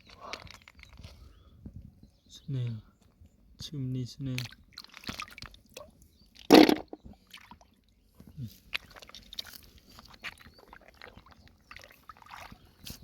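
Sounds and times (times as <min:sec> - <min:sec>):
hands rummaging in water and mud: 0:00.0 - 0:01.2, 0:04.7 - 0:05.6, 0:06.5 - 0:07.0, 0:08.6 - 0:13.0.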